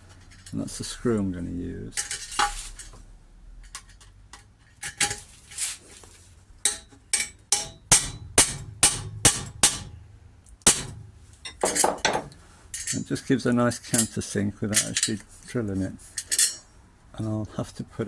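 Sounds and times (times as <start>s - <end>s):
hammer striking sheet metal: 6.6s - 10.0s, 10.6s - 11.1s.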